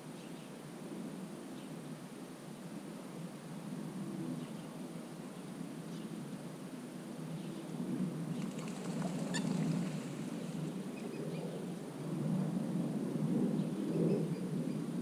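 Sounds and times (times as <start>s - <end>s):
faint bird chirps: 8.5s - 10.0s
bird call: 9.0s - 10.0s.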